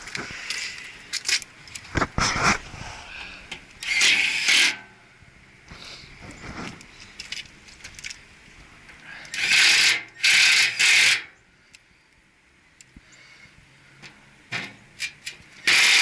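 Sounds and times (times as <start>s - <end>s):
loud rasping tool strokes: 9.4s - 11.3s, 15.6s - 16.0s.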